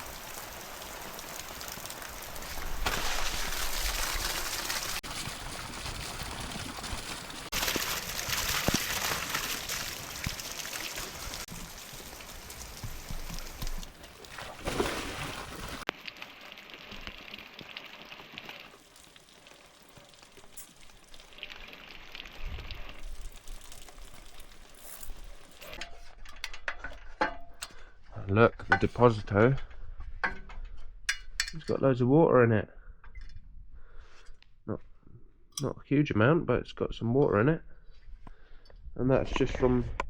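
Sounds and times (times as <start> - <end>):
water pouring and trickling: 0.0 - 27.7.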